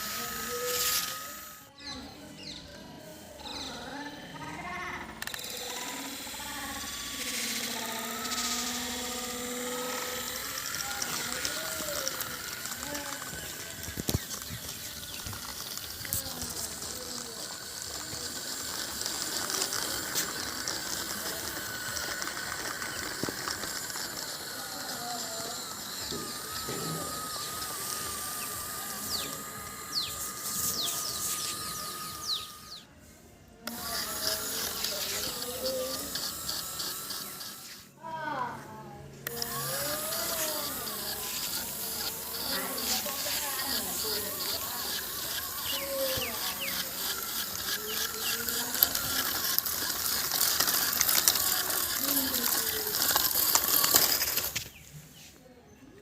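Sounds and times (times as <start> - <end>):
toy electric motor whining: 0.0 - 55.4
mechanical rattling: 5.2 - 32.8, 39.2 - 54.7.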